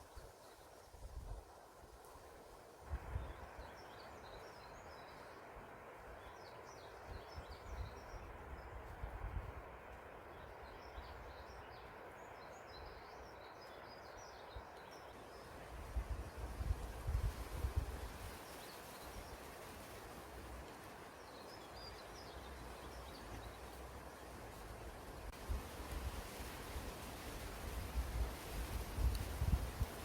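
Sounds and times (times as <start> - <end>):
wind through trees: 0.0 - 30.0
wind on microphone: 2.9 - 3.8, 15.8 - 18.4, 25.3 - 30.0
small songbirds twittering: 3.1 - 9.4, 10.3 - 20.0, 21.1 - 25.3.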